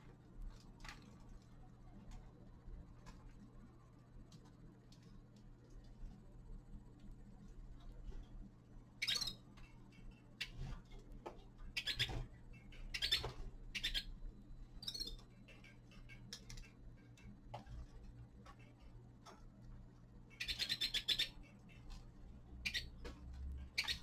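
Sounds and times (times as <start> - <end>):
finches chirping: 9.0 - 10.6, 11.6 - 16.8, 20.3 - 21.9, 22.6 - 23.0, 23.6 - 24.0.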